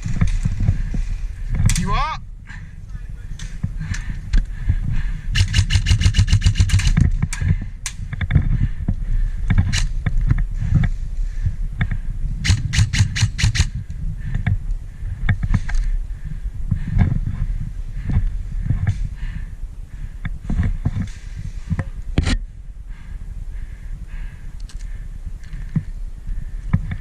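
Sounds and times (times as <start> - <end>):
low rumble of wind: 0.0 - 27.0
airsoft gun firing: 5.4 - 7.0, 12.4 - 13.8.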